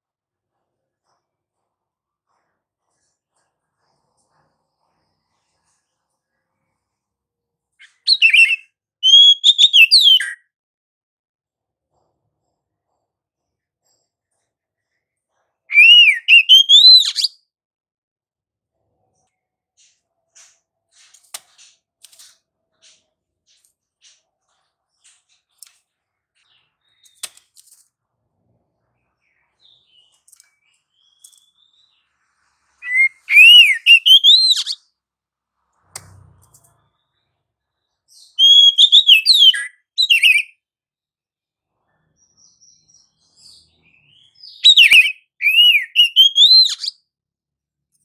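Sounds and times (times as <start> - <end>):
bird singing whistled phrases: 7.9 - 10.4, 15.7 - 17.3, 32.8 - 34.8, 38.4 - 40.5, 44.1 - 46.9.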